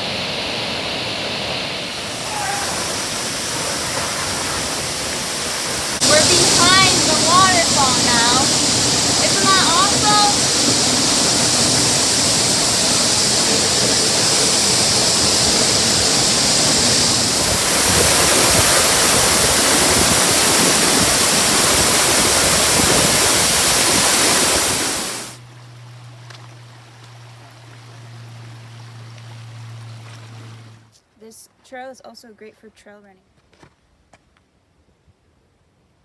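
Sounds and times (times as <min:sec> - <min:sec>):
waterfall rushing: 0:00.0 - 0:25.4.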